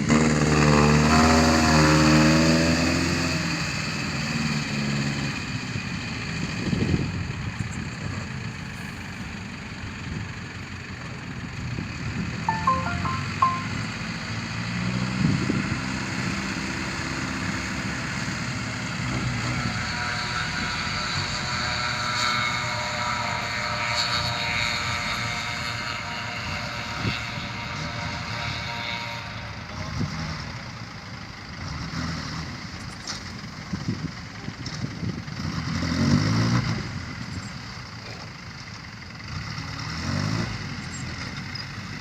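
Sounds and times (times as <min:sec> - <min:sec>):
dump truck engine running: 0:05.7 - 0:12.6, 0:29.2 - 0:31.8, 0:36.9 - 0:39.9.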